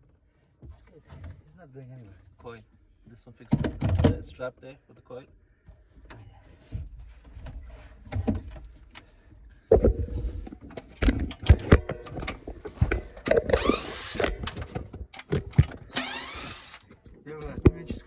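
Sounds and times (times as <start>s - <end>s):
cordless drill motor whine: 13.5s - 14.6s, 15.9s - 16.9s.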